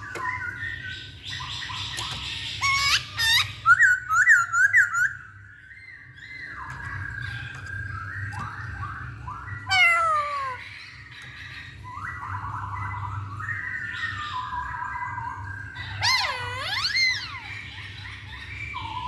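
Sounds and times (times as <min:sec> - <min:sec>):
bird singing whistled phrases: 0:11.9 - 0:17.8.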